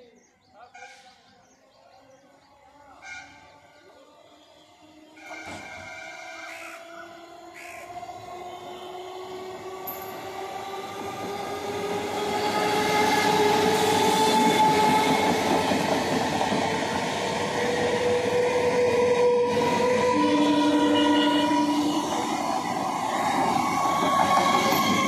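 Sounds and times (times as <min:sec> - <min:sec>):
train wheels rumbling on rails: 0:05.2 - 0:25.0.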